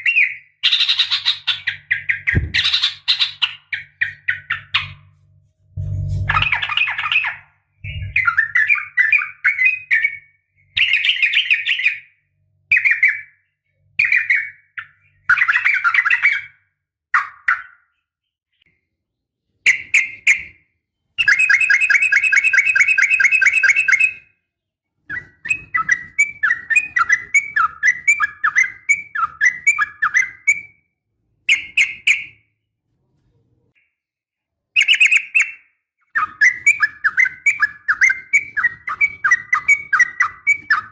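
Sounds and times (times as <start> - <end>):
bird fast trill: 5.8 - 10.2.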